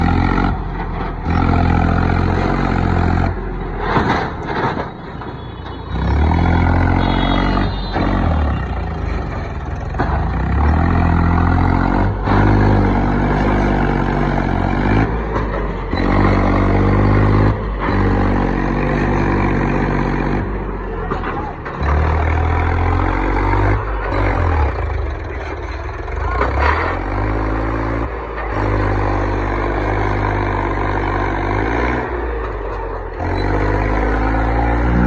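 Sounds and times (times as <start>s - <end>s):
tractor diesel engine working hard: 0.0s - 35.0s.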